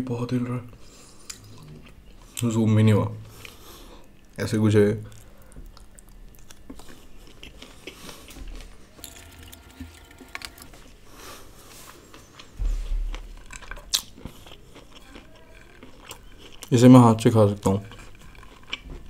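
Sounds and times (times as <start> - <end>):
chewing and wet mouth clicks: 5.1 - 8.3, 12.1 - 16.8.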